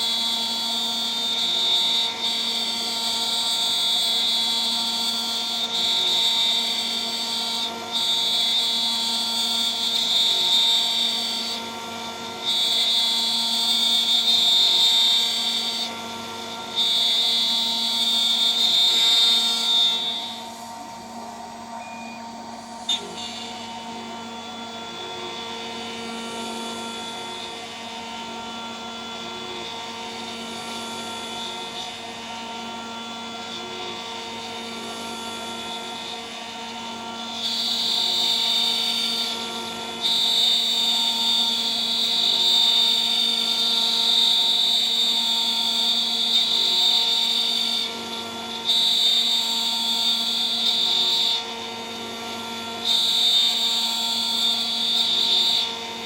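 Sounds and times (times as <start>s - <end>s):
high-pitched end mill cutting: 0.0s - 56.0s
router spindle running at high speed: 0.0s - 56.0s.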